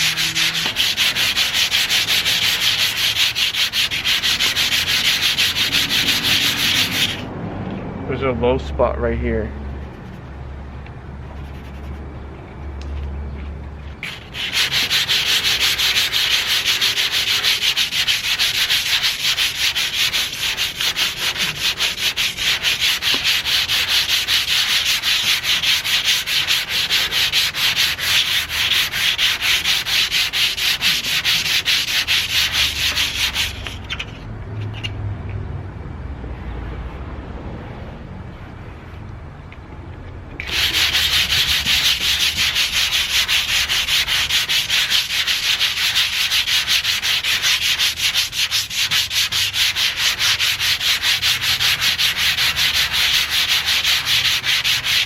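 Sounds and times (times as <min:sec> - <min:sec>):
sandpaper scraping painted metal: 0:00.0 - 0:07.3, 0:11.2 - 0:12.1, 0:14.0 - 0:34.9, 0:40.4 - 0:55.0.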